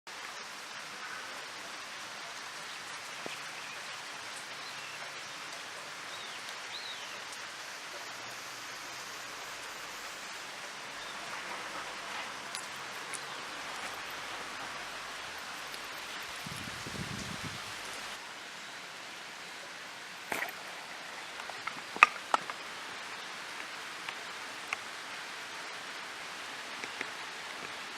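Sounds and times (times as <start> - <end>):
rain pattering on surfaces: 0.1 - 18.7, 19.4 - 27.9
water drips: 1.4 - 18.2, 20.2 - 25.6.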